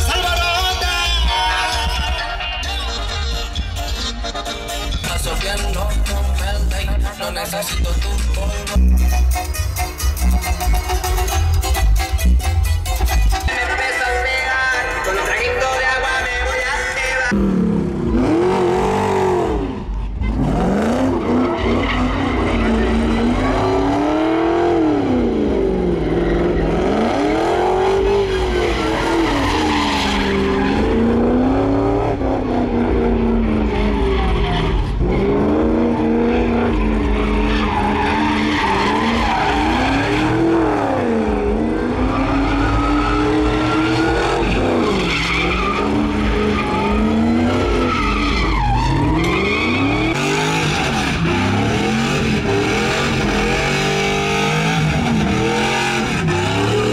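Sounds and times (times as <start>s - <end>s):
truck engine revving: 0.0s - 56.9s
tyres squealing on pavement: 21.0s - 24.1s, 25.8s - 31.3s, 33.0s - 40.7s, 42.0s - 52.8s.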